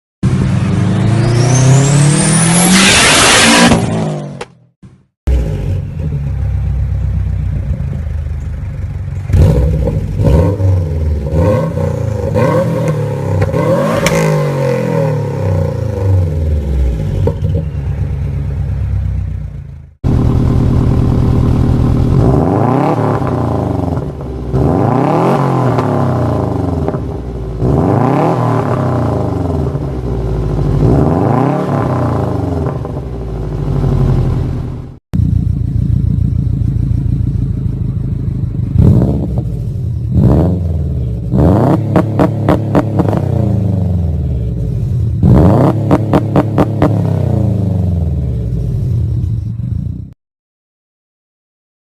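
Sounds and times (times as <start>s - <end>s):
car engine revving: 0.2s - 4.6s, 5.3s - 49.5s.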